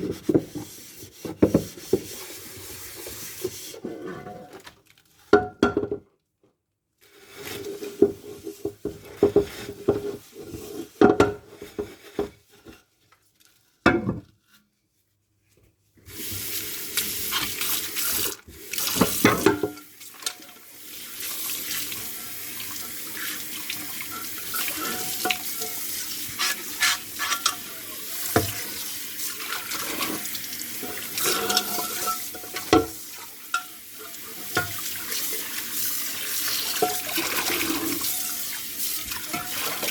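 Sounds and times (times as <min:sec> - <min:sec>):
dishes scrubbing and clinking: 0:21.6 - 0:39.9.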